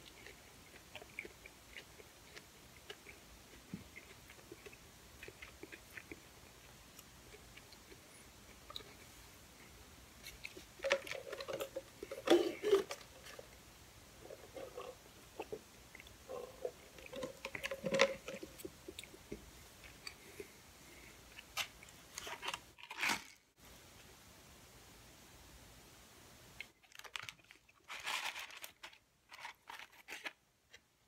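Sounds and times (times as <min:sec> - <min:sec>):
crunchy food chewing: 0:00.0 - 0:09.1.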